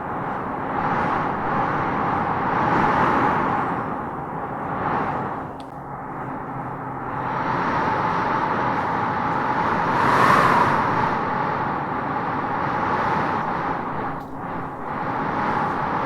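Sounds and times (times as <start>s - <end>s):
wind gusting through trees: 0.0s - 16.0s.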